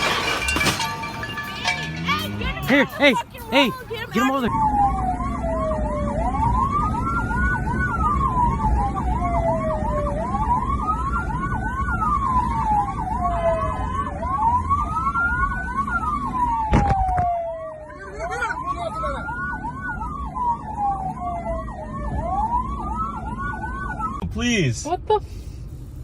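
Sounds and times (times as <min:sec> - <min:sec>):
siren wailing: 0:00.3 - 0:24.2
siren fast whooping sweep: 0:02.4 - 0:16.7.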